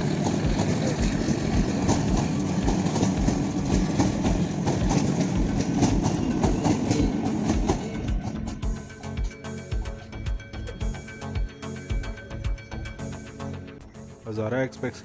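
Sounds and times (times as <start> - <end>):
train coaches rumbling past: 0.0 - 9.2
wheels clicking over rail joints: 0.0 - 9.9.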